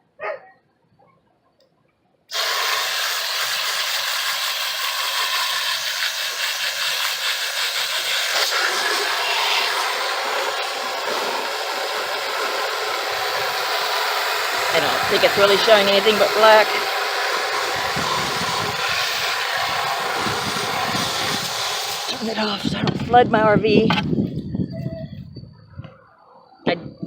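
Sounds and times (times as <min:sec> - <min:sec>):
garden hose spraying water: 0:02.3 - 0:22.9.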